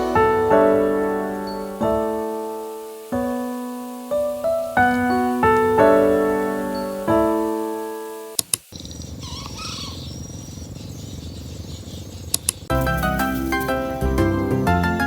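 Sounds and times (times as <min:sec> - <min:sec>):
gentle piano music: 0:00.0 - 0:08.4, 0:12.7 - 0:15.0
faint chirps: 0:00.0 - 0:12.7
ambient hiss: 0:00.0 - 0:15.0
sharp clicks: 0:08.4 - 0:08.7, 0:12.3 - 0:12.7.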